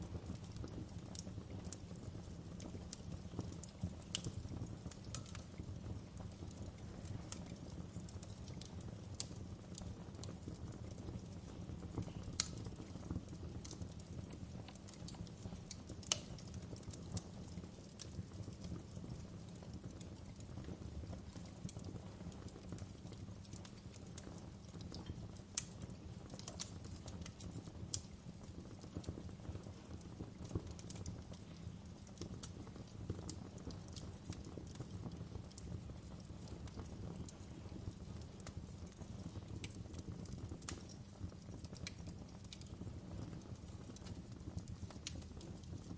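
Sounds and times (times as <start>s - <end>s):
fireplace fire crackling: 0.0s - 45.9s.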